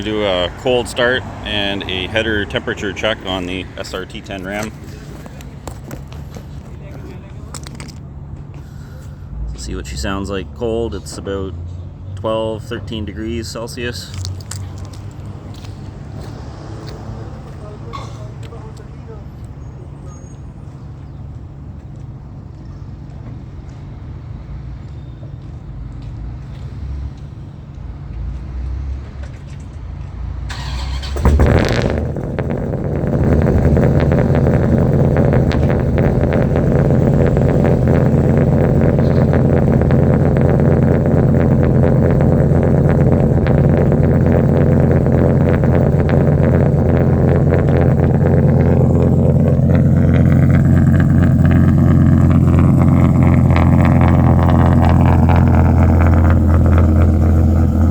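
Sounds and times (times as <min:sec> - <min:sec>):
engine cold-starting and idling: 0:00.0 - 0:11.5, 0:12.2 - 0:19.5, 0:30.4 - 0:57.9.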